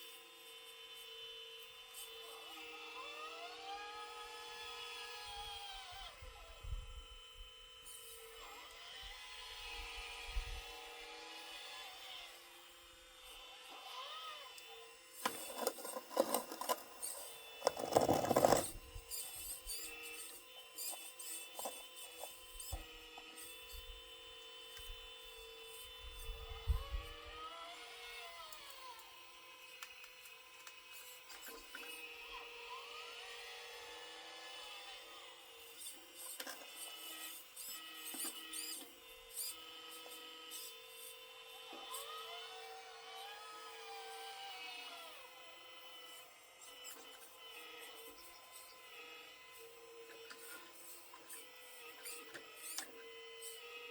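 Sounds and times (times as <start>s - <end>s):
small motors whining: 0.0s - 53.9s
scratchy metal scraping: 15.2s - 22.4s.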